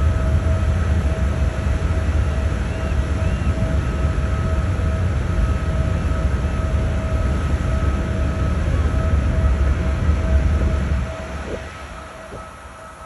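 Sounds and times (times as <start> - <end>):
machinery whine: 0.0 - 13.0
ship engines rumbling: 0.1 - 13.0.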